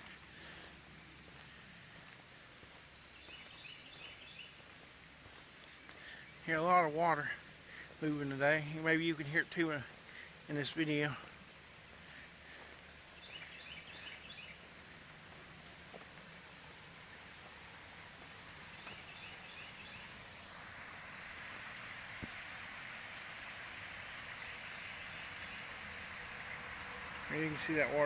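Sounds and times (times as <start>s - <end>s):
high-pitched insect drone: 0.0s - 28.0s
water rushing in creek: 14.5s - 28.0s.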